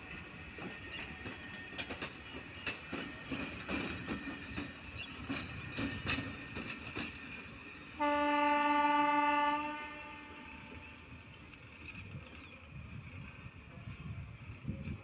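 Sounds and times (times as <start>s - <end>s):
train wheels clattering over rail joints: 0.0s - 7.9s
train horn blast: 8.0s - 10.8s.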